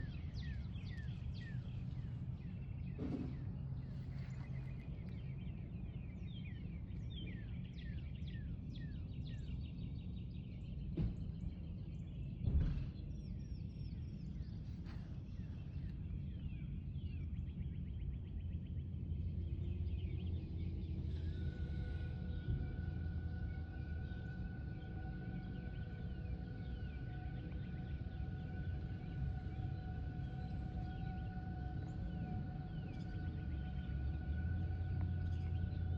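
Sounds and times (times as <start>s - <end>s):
birds chirping and singing: 0.0s - 3.2s, 15.3s - 35.9s
steady low rumble: 0.0s - 35.9s.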